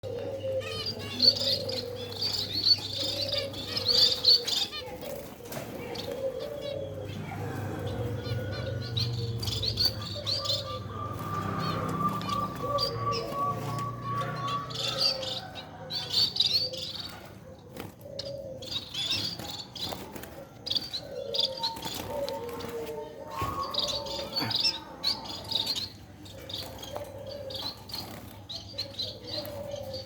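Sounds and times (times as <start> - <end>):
finches chirping: 5.8 - 17.4.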